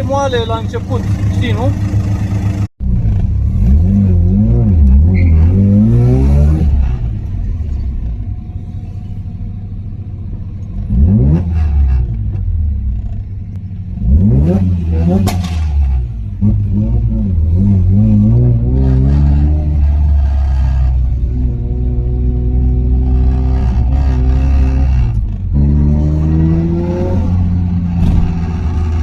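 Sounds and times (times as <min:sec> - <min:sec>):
engine crackle: 0:00.0 - 0:16.7, 0:27.0 - 0:29.0
rotary engine revving: 0:00.9 - 0:07.4, 0:14.0 - 0:29.0.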